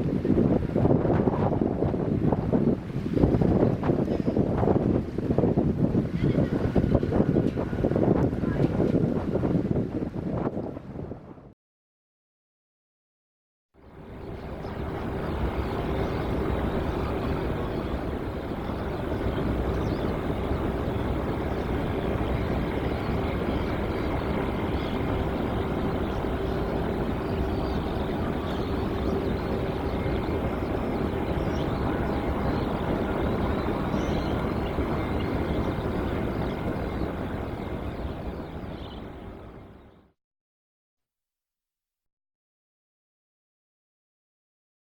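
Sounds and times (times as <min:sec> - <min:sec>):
jet engines running: 0:13.9 - 0:40.0.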